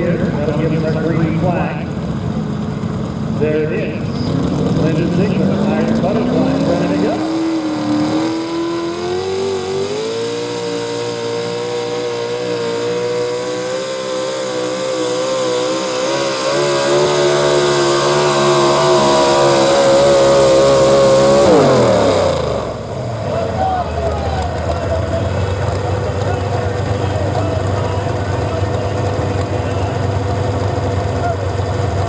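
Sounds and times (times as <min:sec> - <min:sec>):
truck engine at high revs: 0:00.0 - 0:32.0.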